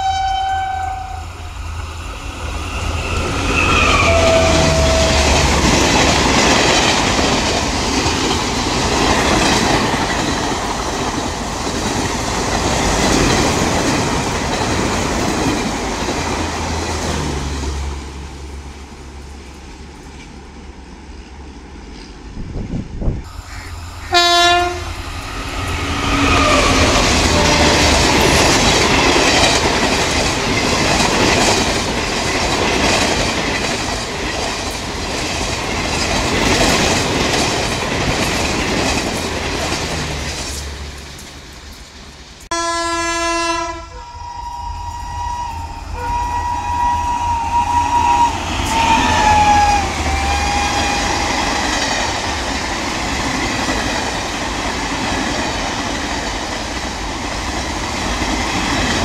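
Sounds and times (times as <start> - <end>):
train horn blast: 0.0 - 1.5, 3.6 - 5.7, 23.5 - 28.4, 42.5 - 51.7
train rushing past: 0.0 - 59.0.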